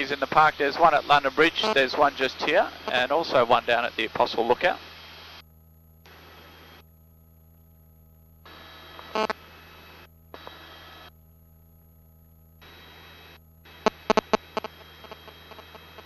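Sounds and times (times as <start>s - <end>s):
hissing intercom channel: 0.0s - 4.9s.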